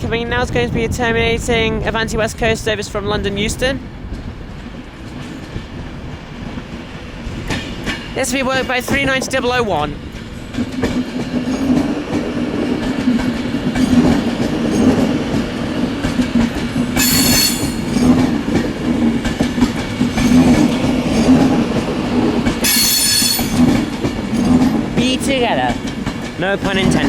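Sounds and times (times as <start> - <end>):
electric train humming and rumbling: 0.0 - 27.0
high-pitched train squeals: 17.0 - 18.2, 22.6 - 24.7.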